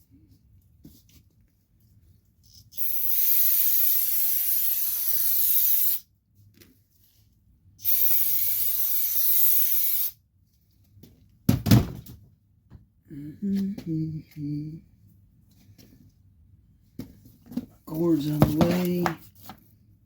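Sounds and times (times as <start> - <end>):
aerosol can spraying: 2.7 - 6.1, 7.8 - 10.2.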